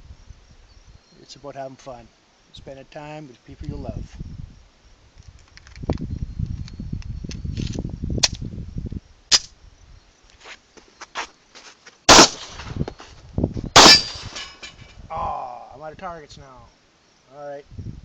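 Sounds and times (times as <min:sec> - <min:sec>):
pistol shots: 0:12.1 - 0:12.7, 0:13.8 - 0:14.4.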